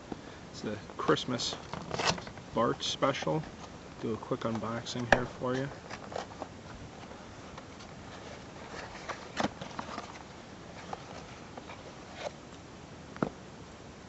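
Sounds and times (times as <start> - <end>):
background hiss: 0.0 - 14.0
package rustling: 4.6 - 12.4.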